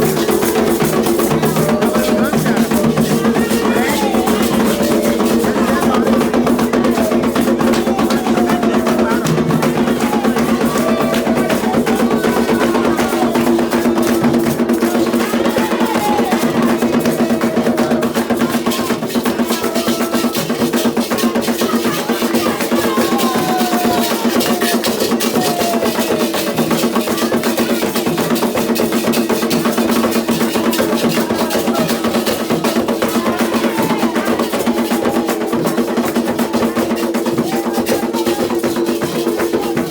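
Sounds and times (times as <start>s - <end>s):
hand drums in fast rhythm: 0.0s - 39.9s
voices singing: 0.0s - 39.9s.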